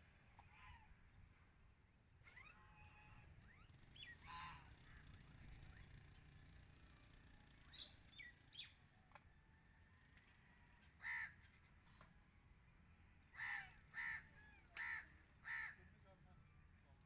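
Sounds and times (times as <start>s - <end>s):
bird harsh calls: 13.4s - 15.8s.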